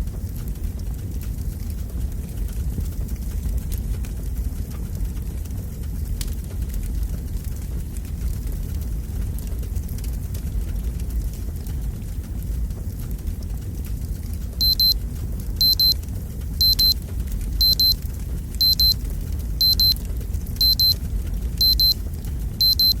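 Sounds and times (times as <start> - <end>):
fireplace fire burning: 0.0 - 23.0
digital timer alarm beeping: 14.6 - 15.0, 15.6 - 16.0, 16.6 - 17.0, 17.6 - 18.0, 18.6 - 19.0, 19.6 - 20.0, 20.6 - 21.0, 21.6 - 22.0, 22.6 - 23.0.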